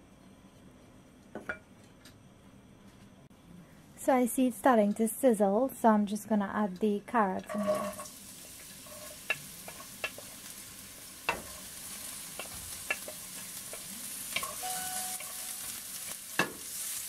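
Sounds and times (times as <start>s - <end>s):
carrots sizzling in hot oil: 7.5s - 17.0s
wooden spoon knocking on pan: 11.3s - 11.6s.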